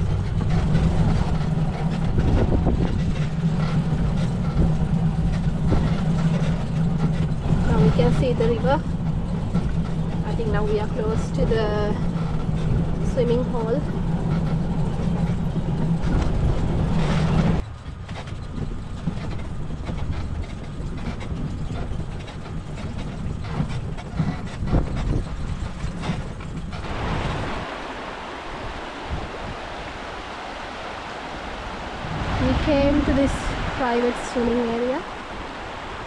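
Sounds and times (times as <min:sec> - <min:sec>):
river water rushing: 0:00.0 - 0:02.2, 0:26.7 - 0:36.0
vehicle rattling: 0:00.0 - 0:29.6, 0:31.6 - 0:36.0
rumbling and knocking over bumps: 0:00.0 - 0:30.0.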